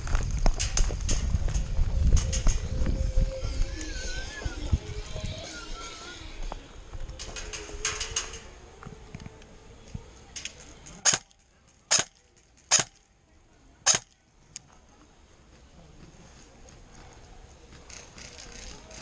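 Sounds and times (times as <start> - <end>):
airsoft gun shots: 11.0 - 13.0, 13.8 - 14.2.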